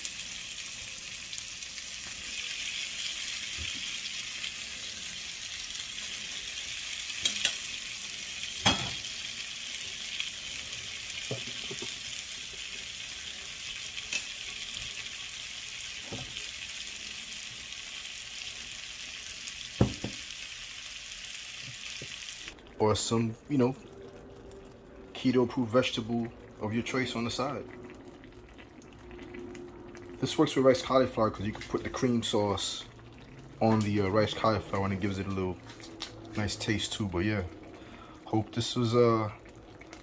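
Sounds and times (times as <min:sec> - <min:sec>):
chicken sizzling in oil: 0:00.0 - 0:23.9.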